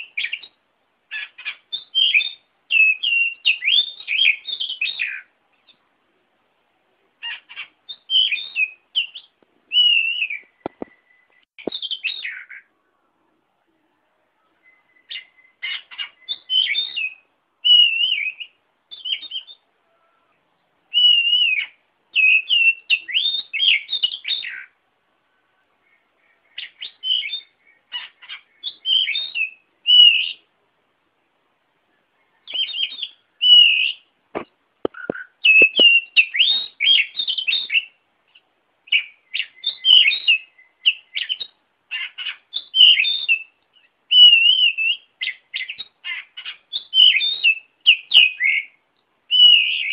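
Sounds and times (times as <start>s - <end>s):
songbird singing: 0.0s - 49.9s.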